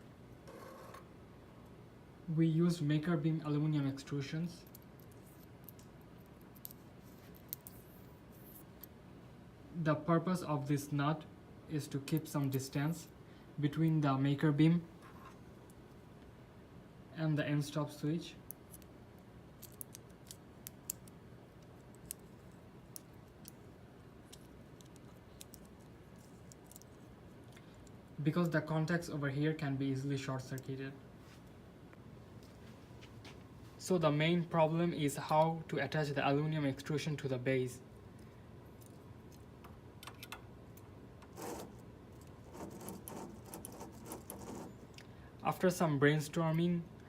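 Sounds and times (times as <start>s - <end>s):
low room hum: 0.0s - 47.0s
small hardware parts clicking: 19.6s - 23.6s, 24.3s - 28.0s, 38.8s - 45.0s.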